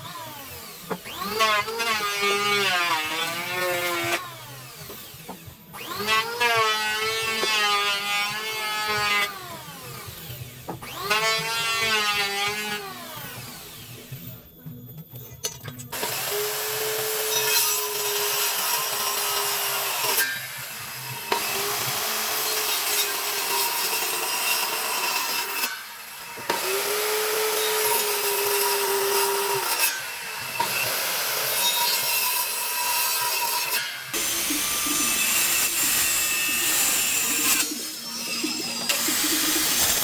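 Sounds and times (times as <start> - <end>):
power tool motor whining: 0.0 - 14.4, 32.8 - 40.0
rough wood cutting noise: 16.0 - 40.0.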